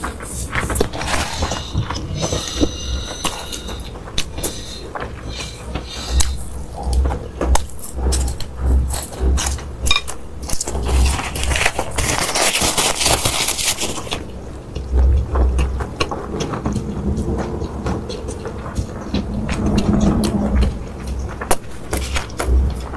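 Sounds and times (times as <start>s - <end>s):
clicks and low thumps: 0.0s - 11.4s, 14.3s - 22.9s
person chewing and crunching food: 0.0s - 22.9s.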